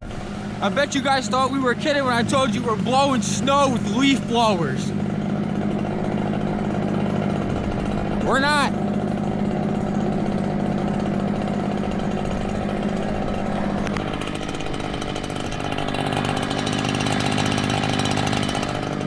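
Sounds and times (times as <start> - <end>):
gas leaf blower running: 0.1 - 19.0.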